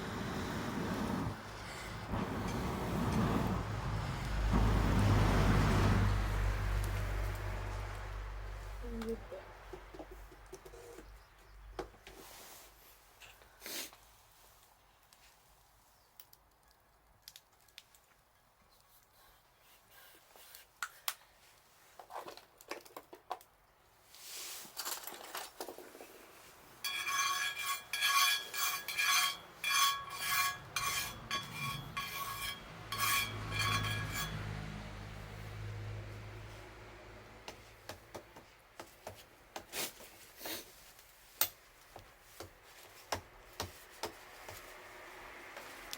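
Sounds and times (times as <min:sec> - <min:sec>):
metal cookware clinking: 0:26.8 - 0:34.6.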